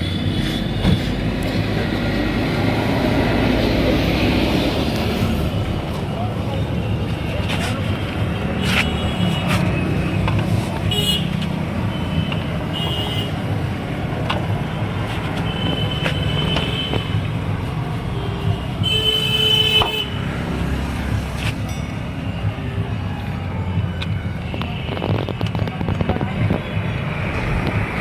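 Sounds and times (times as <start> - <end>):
road traffic: 0.0 - 28.0
vehicle horns tooting: 8.6 - 13.5, 15.2 - 17.4, 18.1 - 20.4.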